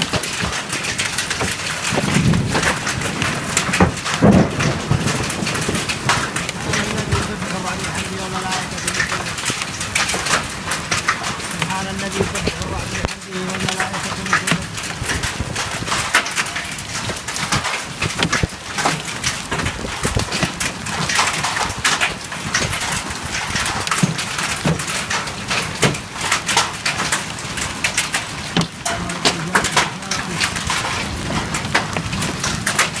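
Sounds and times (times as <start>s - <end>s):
hail and rain pelting a hard surface: 0.0s - 33.0s.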